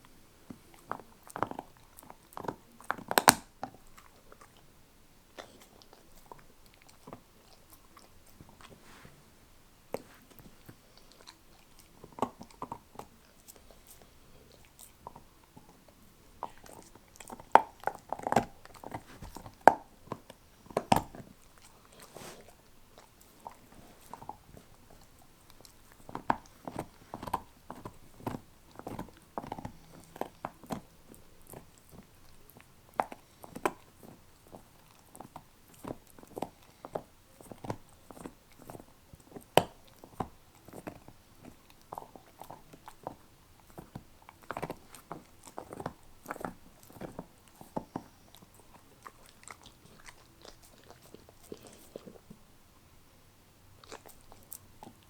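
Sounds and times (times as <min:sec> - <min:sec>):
dog crunching bone: 0:00.0 - 0:04.7, 0:05.3 - 0:09.0, 0:09.9 - 0:52.4, 0:53.8 - 0:55.0
dog wet chewing: 0:00.4 - 0:04.7, 0:05.3 - 0:09.1, 0:09.9 - 0:52.5, 0:53.8 - 0:55.0.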